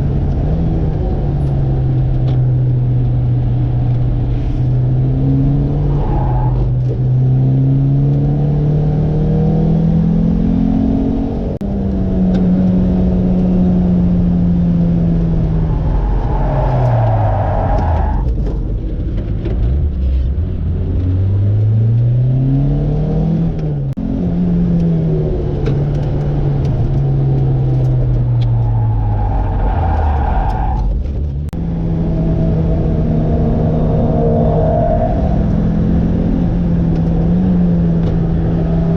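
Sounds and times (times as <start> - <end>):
sports car engine: 0.0 - 38.9.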